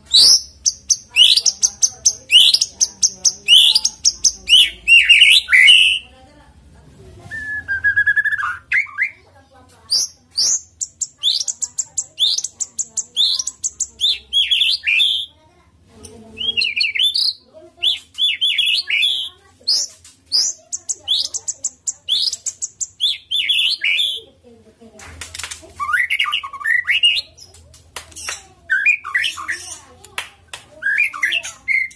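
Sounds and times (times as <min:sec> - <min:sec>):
songbird singing: 0:00.0 - 0:06.1, 0:07.3 - 0:09.2, 0:09.9 - 0:15.4, 0:16.0 - 0:24.3, 0:25.8 - 0:30.1, 0:30.7 - 0:31.9.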